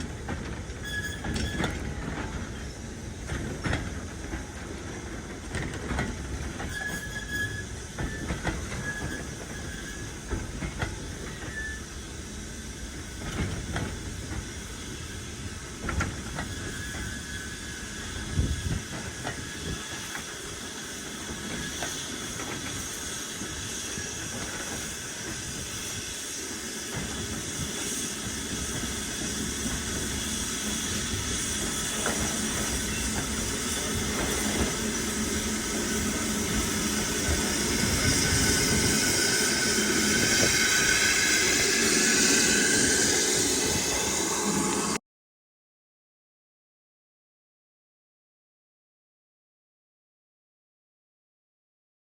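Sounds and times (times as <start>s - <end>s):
low train rumble: 0.0s - 45.0s
steam hissing: 6.2s - 45.0s.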